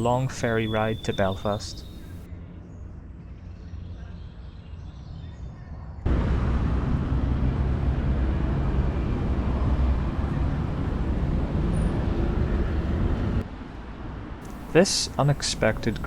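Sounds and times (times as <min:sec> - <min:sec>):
low engine rumble: 0:00.0 - 0:02.3, 0:14.5 - 0:16.0.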